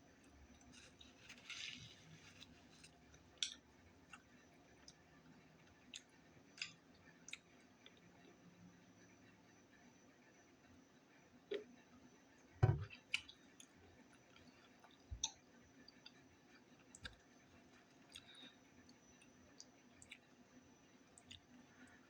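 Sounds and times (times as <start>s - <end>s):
thump: 12.6s - 12.9s
chewing with wet mouth clicks: 13.1s - 16.2s, 16.8s - 17.3s, 17.9s - 20.3s, 21.2s - 21.6s.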